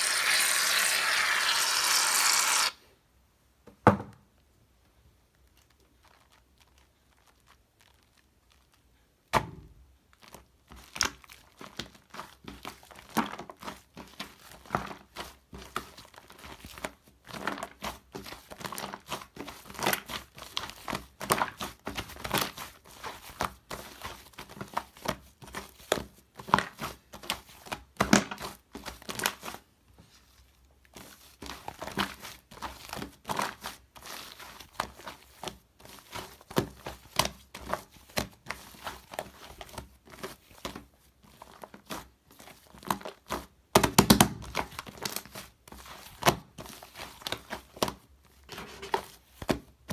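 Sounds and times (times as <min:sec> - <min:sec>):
shaving foam squished by hand: 0:00.0 - 0:02.8.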